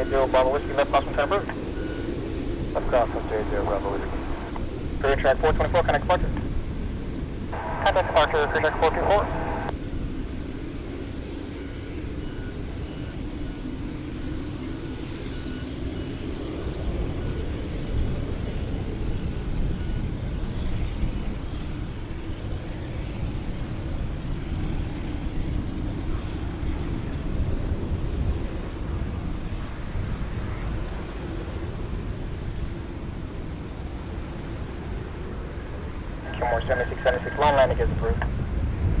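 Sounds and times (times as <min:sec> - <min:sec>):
faint steady whine: 0:00.0 - 0:01.7, 0:02.6 - 0:06.5, 0:07.6 - 0:09.7, 0:36.0 - 0:38.4
aircraft engine rumble: 0:00.0 - 0:09.7, 0:23.9 - 0:39.0.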